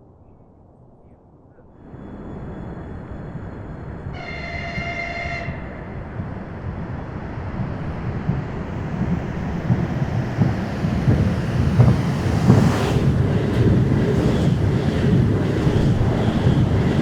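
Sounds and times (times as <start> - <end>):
train rumbling: 1.5 - 17.0
train horn blast: 4.1 - 6.0.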